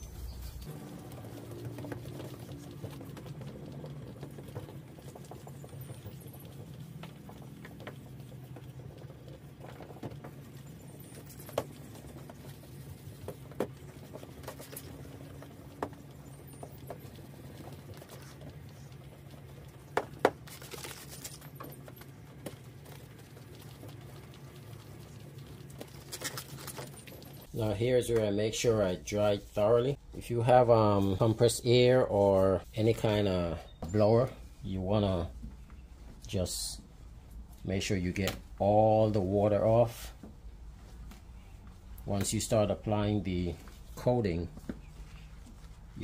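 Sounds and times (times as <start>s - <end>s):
wet sanding on plastic: 0.2s - 19.2s.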